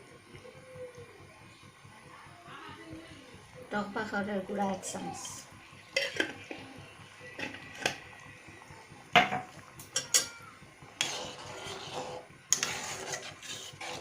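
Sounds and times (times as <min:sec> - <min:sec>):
metal spoon scraping a pan: 0:05.9 - 0:06.7, 0:07.3 - 0:08.1, 0:11.0 - 0:14.0.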